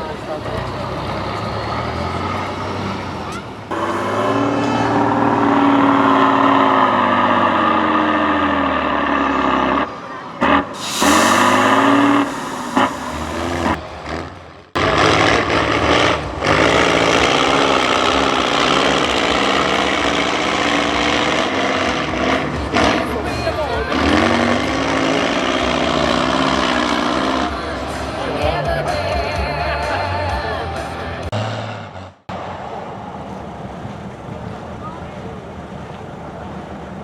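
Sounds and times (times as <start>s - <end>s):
truck engine revving: 1.0s - 14.3s, 14.9s - 27.5s
air hissing: 3.7s - 4.6s, 10.8s - 13.8s.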